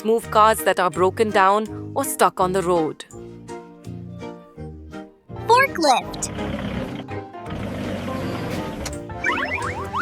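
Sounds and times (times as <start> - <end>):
light background music: 0.0 - 10.0
forklift engine hum: 6.2 - 9.8.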